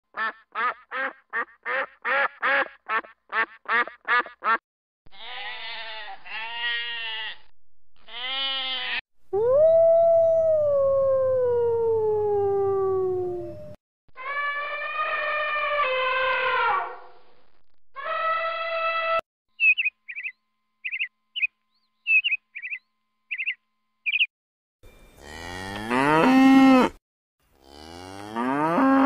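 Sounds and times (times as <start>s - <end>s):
long descending animal call: 8.1s - 17.0s.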